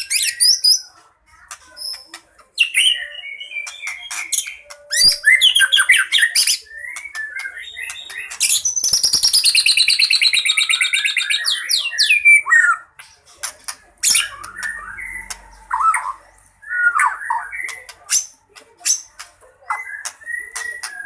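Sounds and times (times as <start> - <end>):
bird singing varied song: 0.0 - 21.0.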